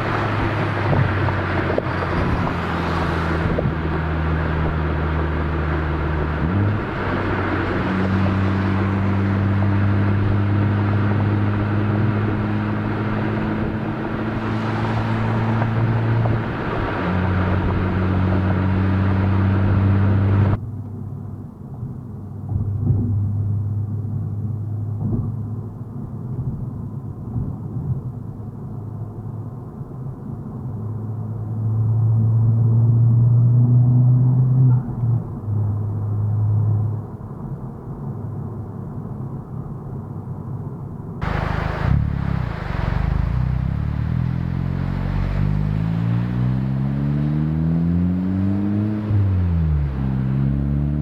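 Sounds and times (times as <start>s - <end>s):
car accelerating: 0.0s - 20.6s, 41.2s - 51.0s
car exhaust note: 41.2s - 51.0s.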